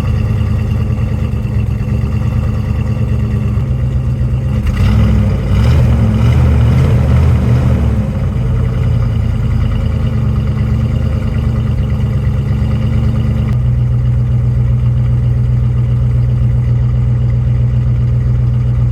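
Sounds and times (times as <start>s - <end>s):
engine running steadily: 0.0s - 18.9s.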